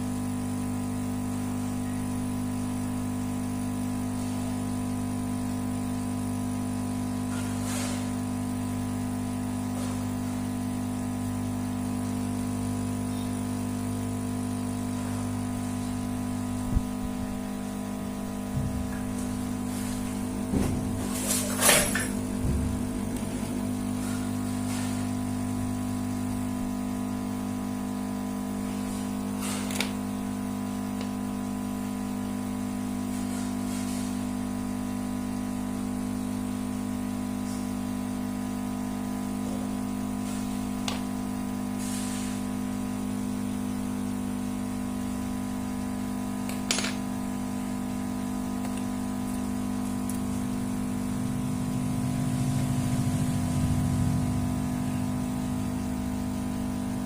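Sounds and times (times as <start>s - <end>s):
electrical hum: 0.0s - 57.0s.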